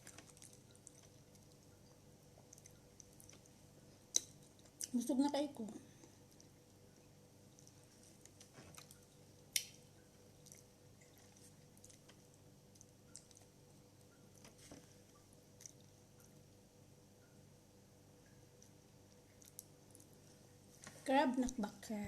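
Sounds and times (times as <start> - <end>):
person chewing food: 0.0 - 4.9, 5.9 - 6.8, 7.4 - 13.6, 14.3 - 16.4, 18.5 - 20.4.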